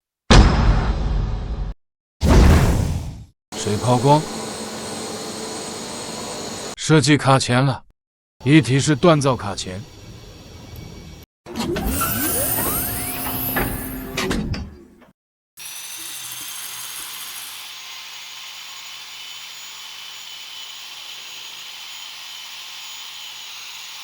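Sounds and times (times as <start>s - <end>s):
loud machine whirring: 3.6s - 6.8s, 8.4s - 14.4s, 15.6s - 24.0s
machine high whine: 3.6s - 6.8s, 8.4s - 14.3s.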